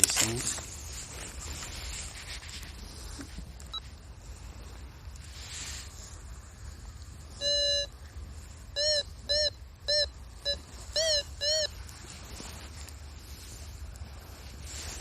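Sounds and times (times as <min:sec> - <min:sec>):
metal detector beeping: 0:07.4 - 0:07.9, 0:08.8 - 0:11.7.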